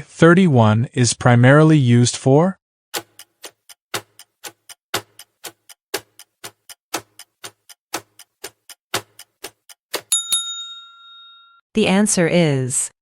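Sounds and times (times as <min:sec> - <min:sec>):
clock ticking: 0:03.0 - 0:10.2
bright double ding: 0:10.1 - 0:11.6.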